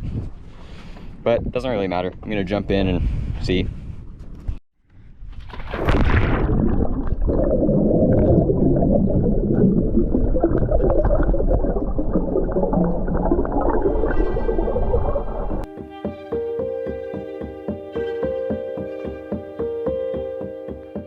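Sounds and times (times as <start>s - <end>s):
splash of person jumping in: 5.4s - 7.0s
muffled underwater bubbling: 6.2s - 15.7s.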